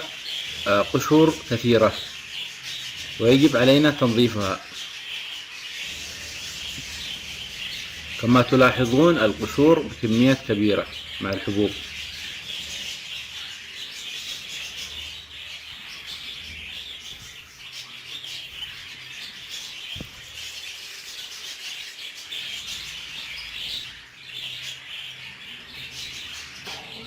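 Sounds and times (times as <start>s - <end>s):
budgerigars chattering and chirping: 0.0s - 27.0s.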